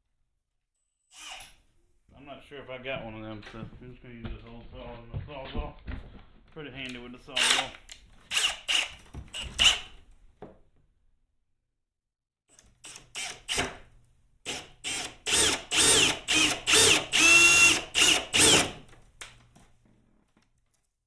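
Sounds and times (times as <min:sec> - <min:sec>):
power drill with hole saw cutting: 0:01.1 - 0:01.6, 0:07.3 - 0:10.0, 0:12.8 - 0:13.8, 0:14.5 - 0:18.9.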